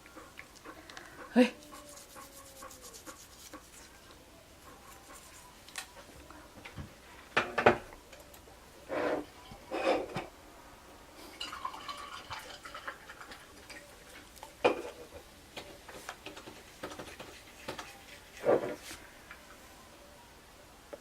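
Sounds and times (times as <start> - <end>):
toothbrush scrubbing teeth: 1.7 - 4.0, 16.4 - 19.0.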